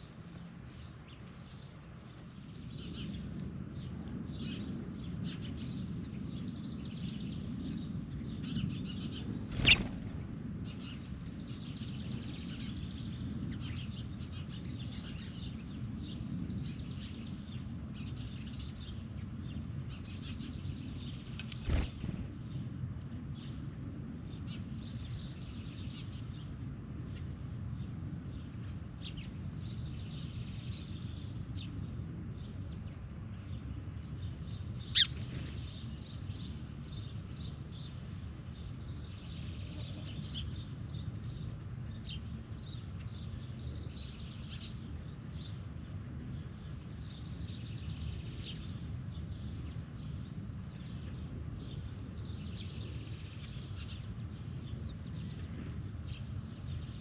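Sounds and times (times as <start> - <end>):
birds chirping: 0.0 - 15.7, 28.4 - 57.0
low outdoor rumble: 0.0 - 57.0.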